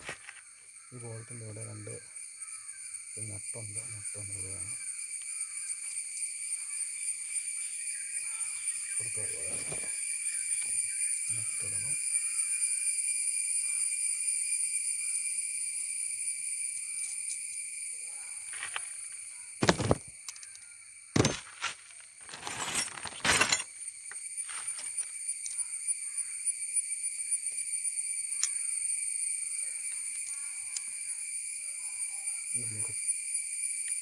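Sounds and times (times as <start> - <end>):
sharp metal clatters: 21.2 - 23.7
small metal parts clinking: 22.2 - 23.7.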